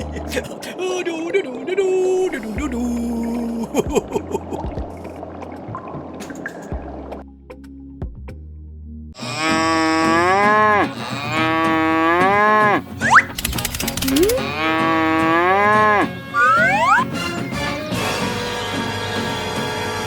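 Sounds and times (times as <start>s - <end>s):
cow mooing: 9.2s - 12.9s, 14.2s - 17.0s
brief rising glides: 16.4s - 17.1s.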